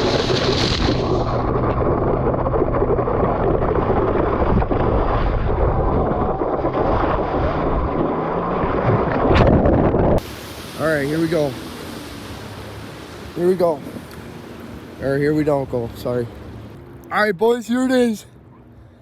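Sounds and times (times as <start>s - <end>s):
wind buffeting microphone: 0.0s - 10.4s
jet ski engine running: 0.0s - 19.0s.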